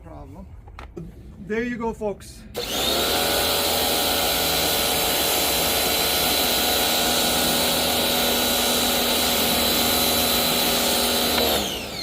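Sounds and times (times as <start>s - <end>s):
pressure washer whining: 2.6s - 12.0s.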